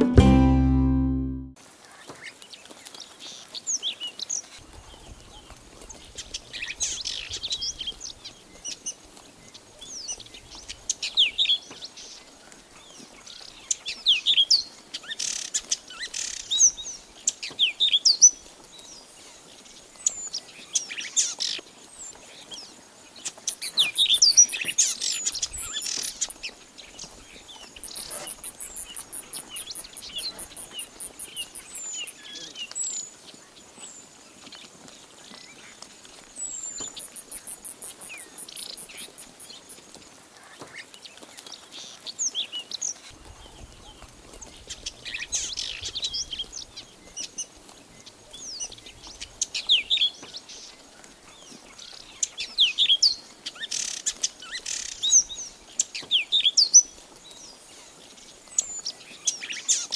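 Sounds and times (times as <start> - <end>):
birds chirping: 27.6 - 32.8, 36.7 - 39.8.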